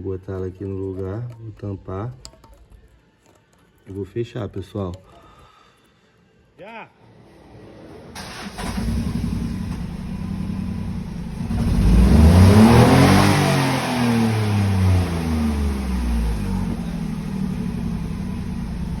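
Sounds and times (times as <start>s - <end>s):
car engine idling and revving: 7.2s - 19.0s.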